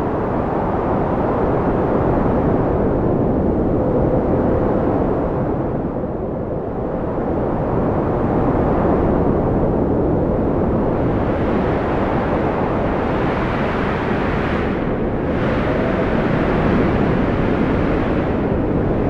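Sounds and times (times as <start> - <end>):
strong wind blowing: 0.0 - 19.0.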